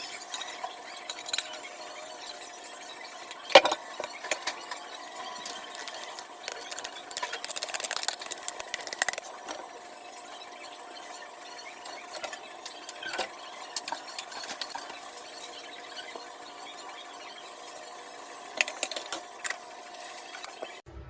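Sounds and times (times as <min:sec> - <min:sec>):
kitchen clicks and scrapes: 0:00.0 - 0:02.5, 0:03.3 - 0:09.6, 0:12.1 - 0:15.5, 0:18.6 - 0:19.6.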